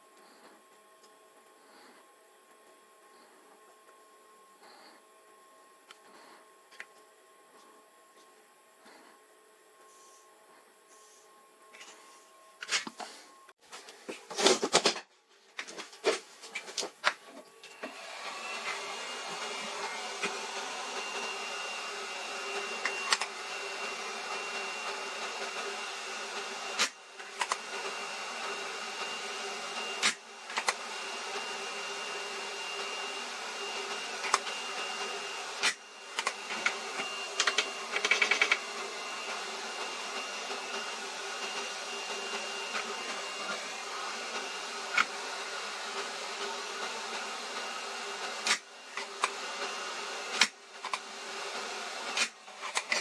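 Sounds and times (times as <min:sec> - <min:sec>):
small electric motor whining: 0:17.4 - 0:53.0.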